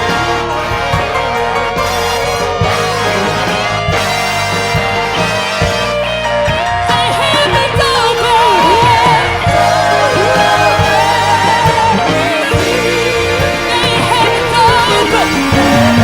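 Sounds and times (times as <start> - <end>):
instrumental accompaniment: 0.0 - 16.0
wordless vocal with vibrato: 6.6 - 16.0.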